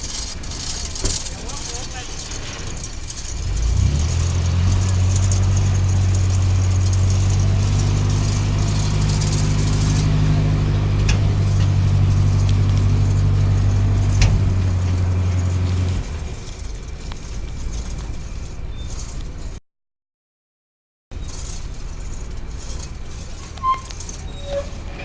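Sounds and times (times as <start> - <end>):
background rumble: 0.0 - 19.6
engine running steadily: 0.0 - 19.6, 21.2 - 25.0.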